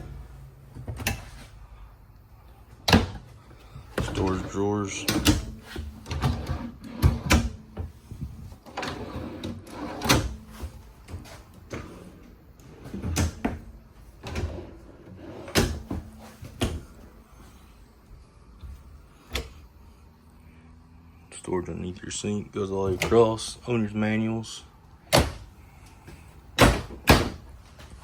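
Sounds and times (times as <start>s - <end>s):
drawers and cabinet doors knocking: 26.6s - 27.4s.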